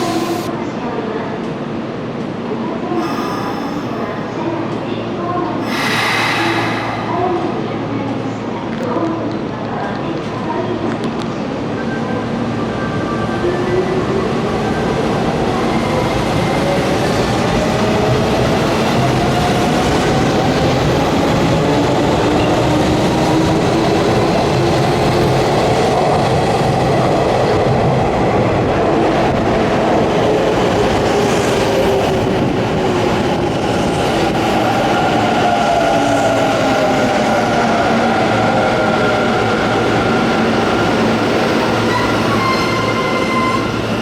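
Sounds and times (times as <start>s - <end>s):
train wheels rumbling on rails: 5.6s - 11.1s.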